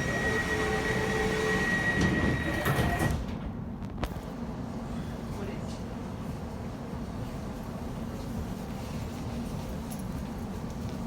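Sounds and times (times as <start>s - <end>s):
train doors shutting: 0.0s - 4.0s.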